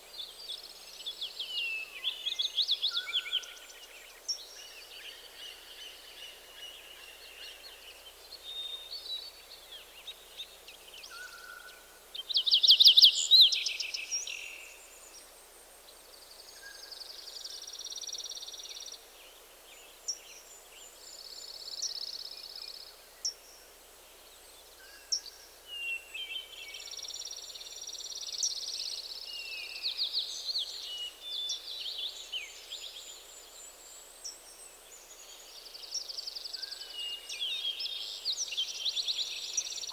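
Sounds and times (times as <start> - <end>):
faint steady hiss: 0.0 - 39.9
songbirds singing: 24.1 - 39.9.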